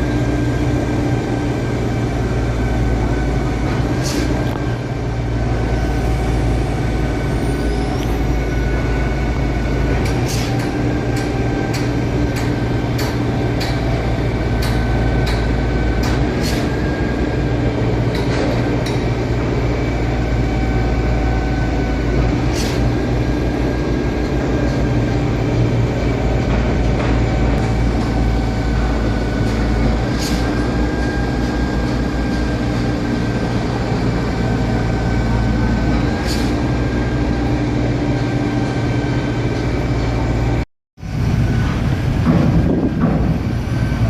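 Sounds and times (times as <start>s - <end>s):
truck engine drone: 0.0s - 44.0s
sharp knocks: 42.2s - 43.4s.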